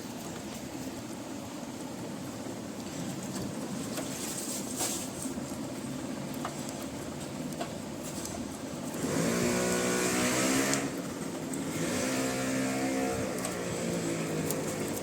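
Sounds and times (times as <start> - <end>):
engine running with rising hum: 8.9 - 15.0.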